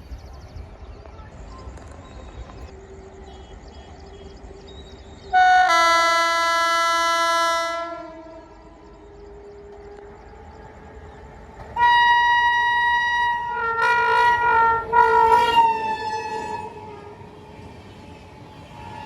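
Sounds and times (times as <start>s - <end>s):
train rumbling on tracks: 0.0s - 19.0s
train horn blast: 5.3s - 10.7s, 11.6s - 19.0s.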